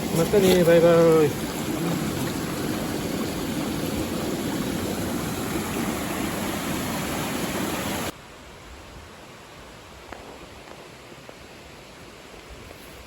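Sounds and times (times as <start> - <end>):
stream water rushing: 0.0 - 8.3.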